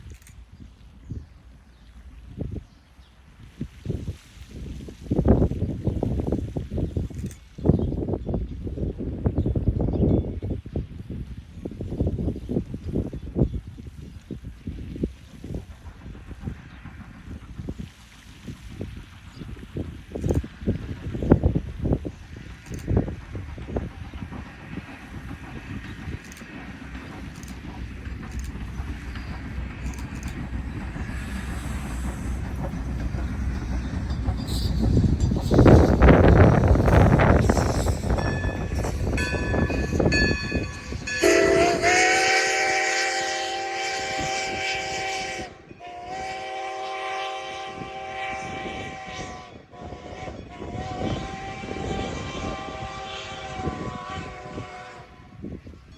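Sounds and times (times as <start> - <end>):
steam train rumble: 0.0 - 55.9
wind on microphone: 0.0 - 55.9
steam whistle blasts: 41.1 - 55.4.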